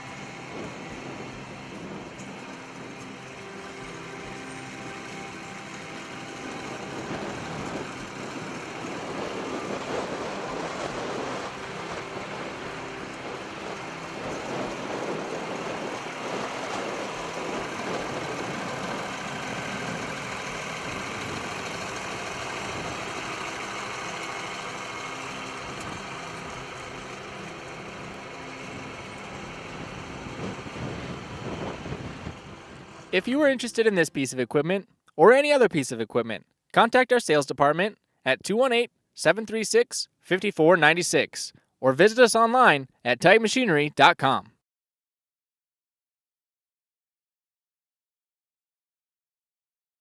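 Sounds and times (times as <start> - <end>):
tractor diesel engine running: 0.0 - 34.6.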